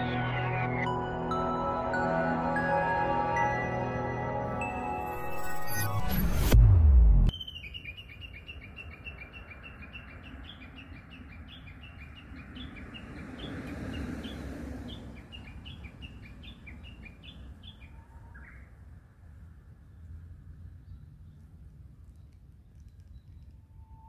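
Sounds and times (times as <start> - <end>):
songbird chirping: 7.3 - 24.0.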